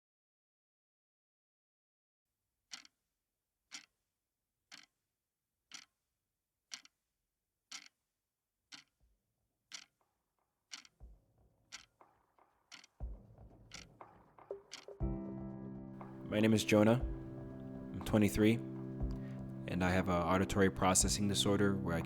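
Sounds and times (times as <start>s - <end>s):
clock ticking: 2.7s - 2.9s, 3.7s - 3.9s, 4.7s - 4.9s, 5.7s - 5.9s, 6.7s - 6.9s, 7.7s - 7.9s, 8.7s - 8.9s, 9.7s - 10.0s, 10.7s - 11.1s, 11.7s - 15.1s, 16.0s - 22.0s.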